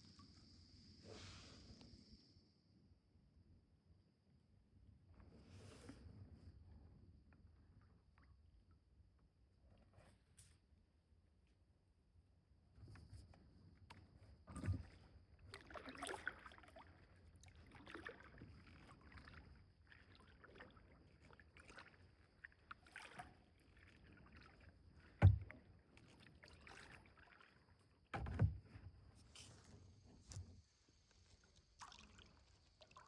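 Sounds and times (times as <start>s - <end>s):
paddle strokes splashing in water: 15.5s - 28.5s.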